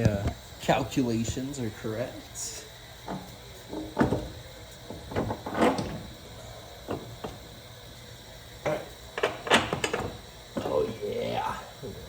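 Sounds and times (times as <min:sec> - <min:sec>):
metal clunks and knocks: 0:03.0 - 0:06.1, 0:08.6 - 0:10.7.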